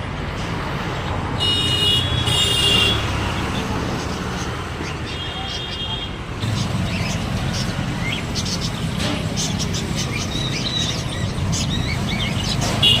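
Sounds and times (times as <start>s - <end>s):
low rumble of traffic: 0.0s - 13.0s
parrots chirping: 3.2s - 12.6s.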